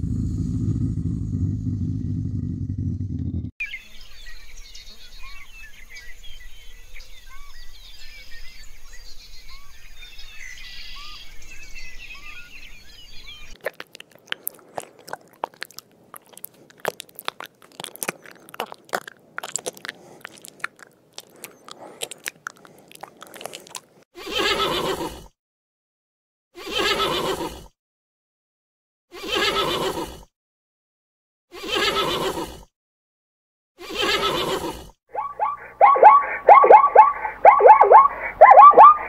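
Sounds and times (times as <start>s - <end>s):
dense small clicks and crackles: 13.6s - 24.0s
horse whinnying: 24.2s - 25.2s, 26.6s - 27.7s, 29.2s - 30.2s, 31.6s - 32.5s, 33.8s - 39.0s
faint bird chirps: 35.2s - 39.0s.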